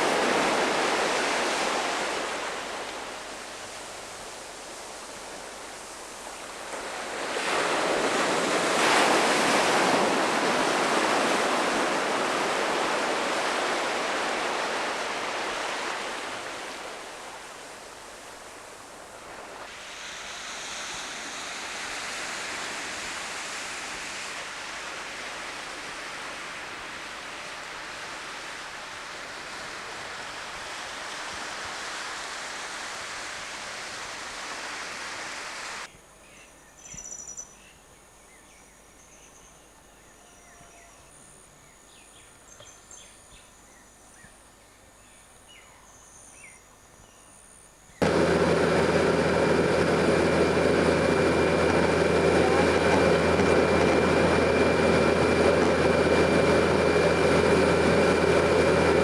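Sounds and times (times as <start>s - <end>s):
high insect or bird chirps: 36.3s - 48.0s
water rushing: 48.0s - 59.0s.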